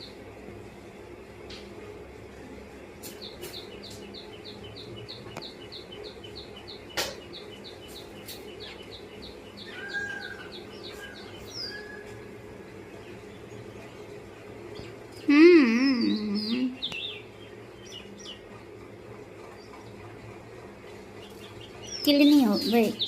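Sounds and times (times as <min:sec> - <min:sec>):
small bird chirping: 0:03.0 - 0:18.6, 0:20.8 - 0:23.0.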